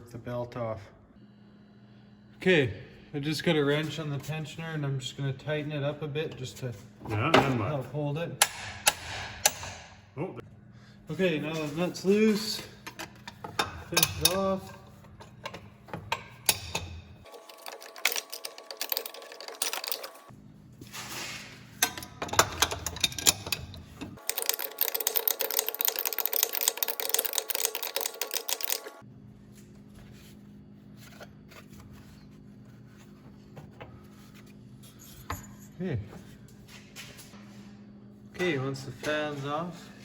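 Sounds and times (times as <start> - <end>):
hand tools clinking on metal nut: 12.8 - 20.2, 21.8 - 28.8.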